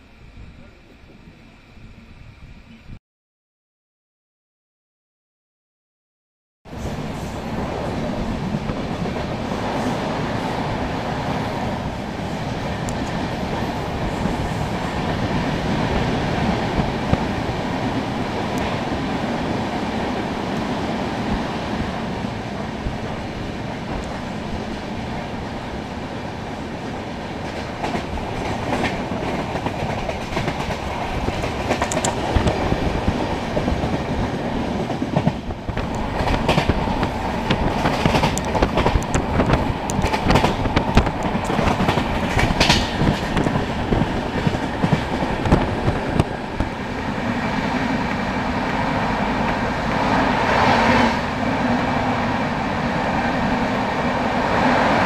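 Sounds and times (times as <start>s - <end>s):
train wheels rumbling on rails: 6.7s - 55.0s
wheels clicking over rail joints: 27.4s - 34.0s, 34.8s - 46.8s.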